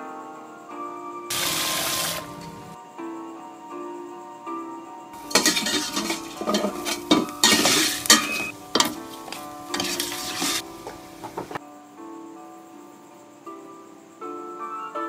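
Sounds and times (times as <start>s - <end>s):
background music: 0.0s - 15.0s
food sizzling in a pan: 1.3s - 2.8s, 5.2s - 11.6s
utensil scraping a pan: 1.3s - 2.8s, 5.2s - 11.6s.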